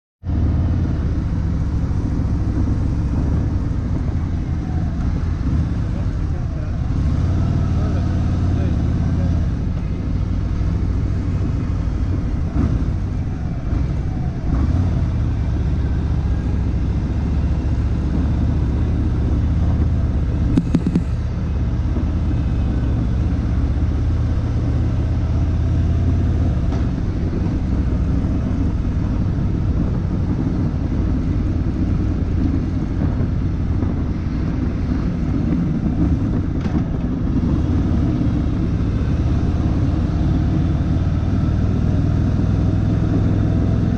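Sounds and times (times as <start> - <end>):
motorcycle engine rumbling: 0.2 - 43.9
road and wind noise: 0.2 - 43.9.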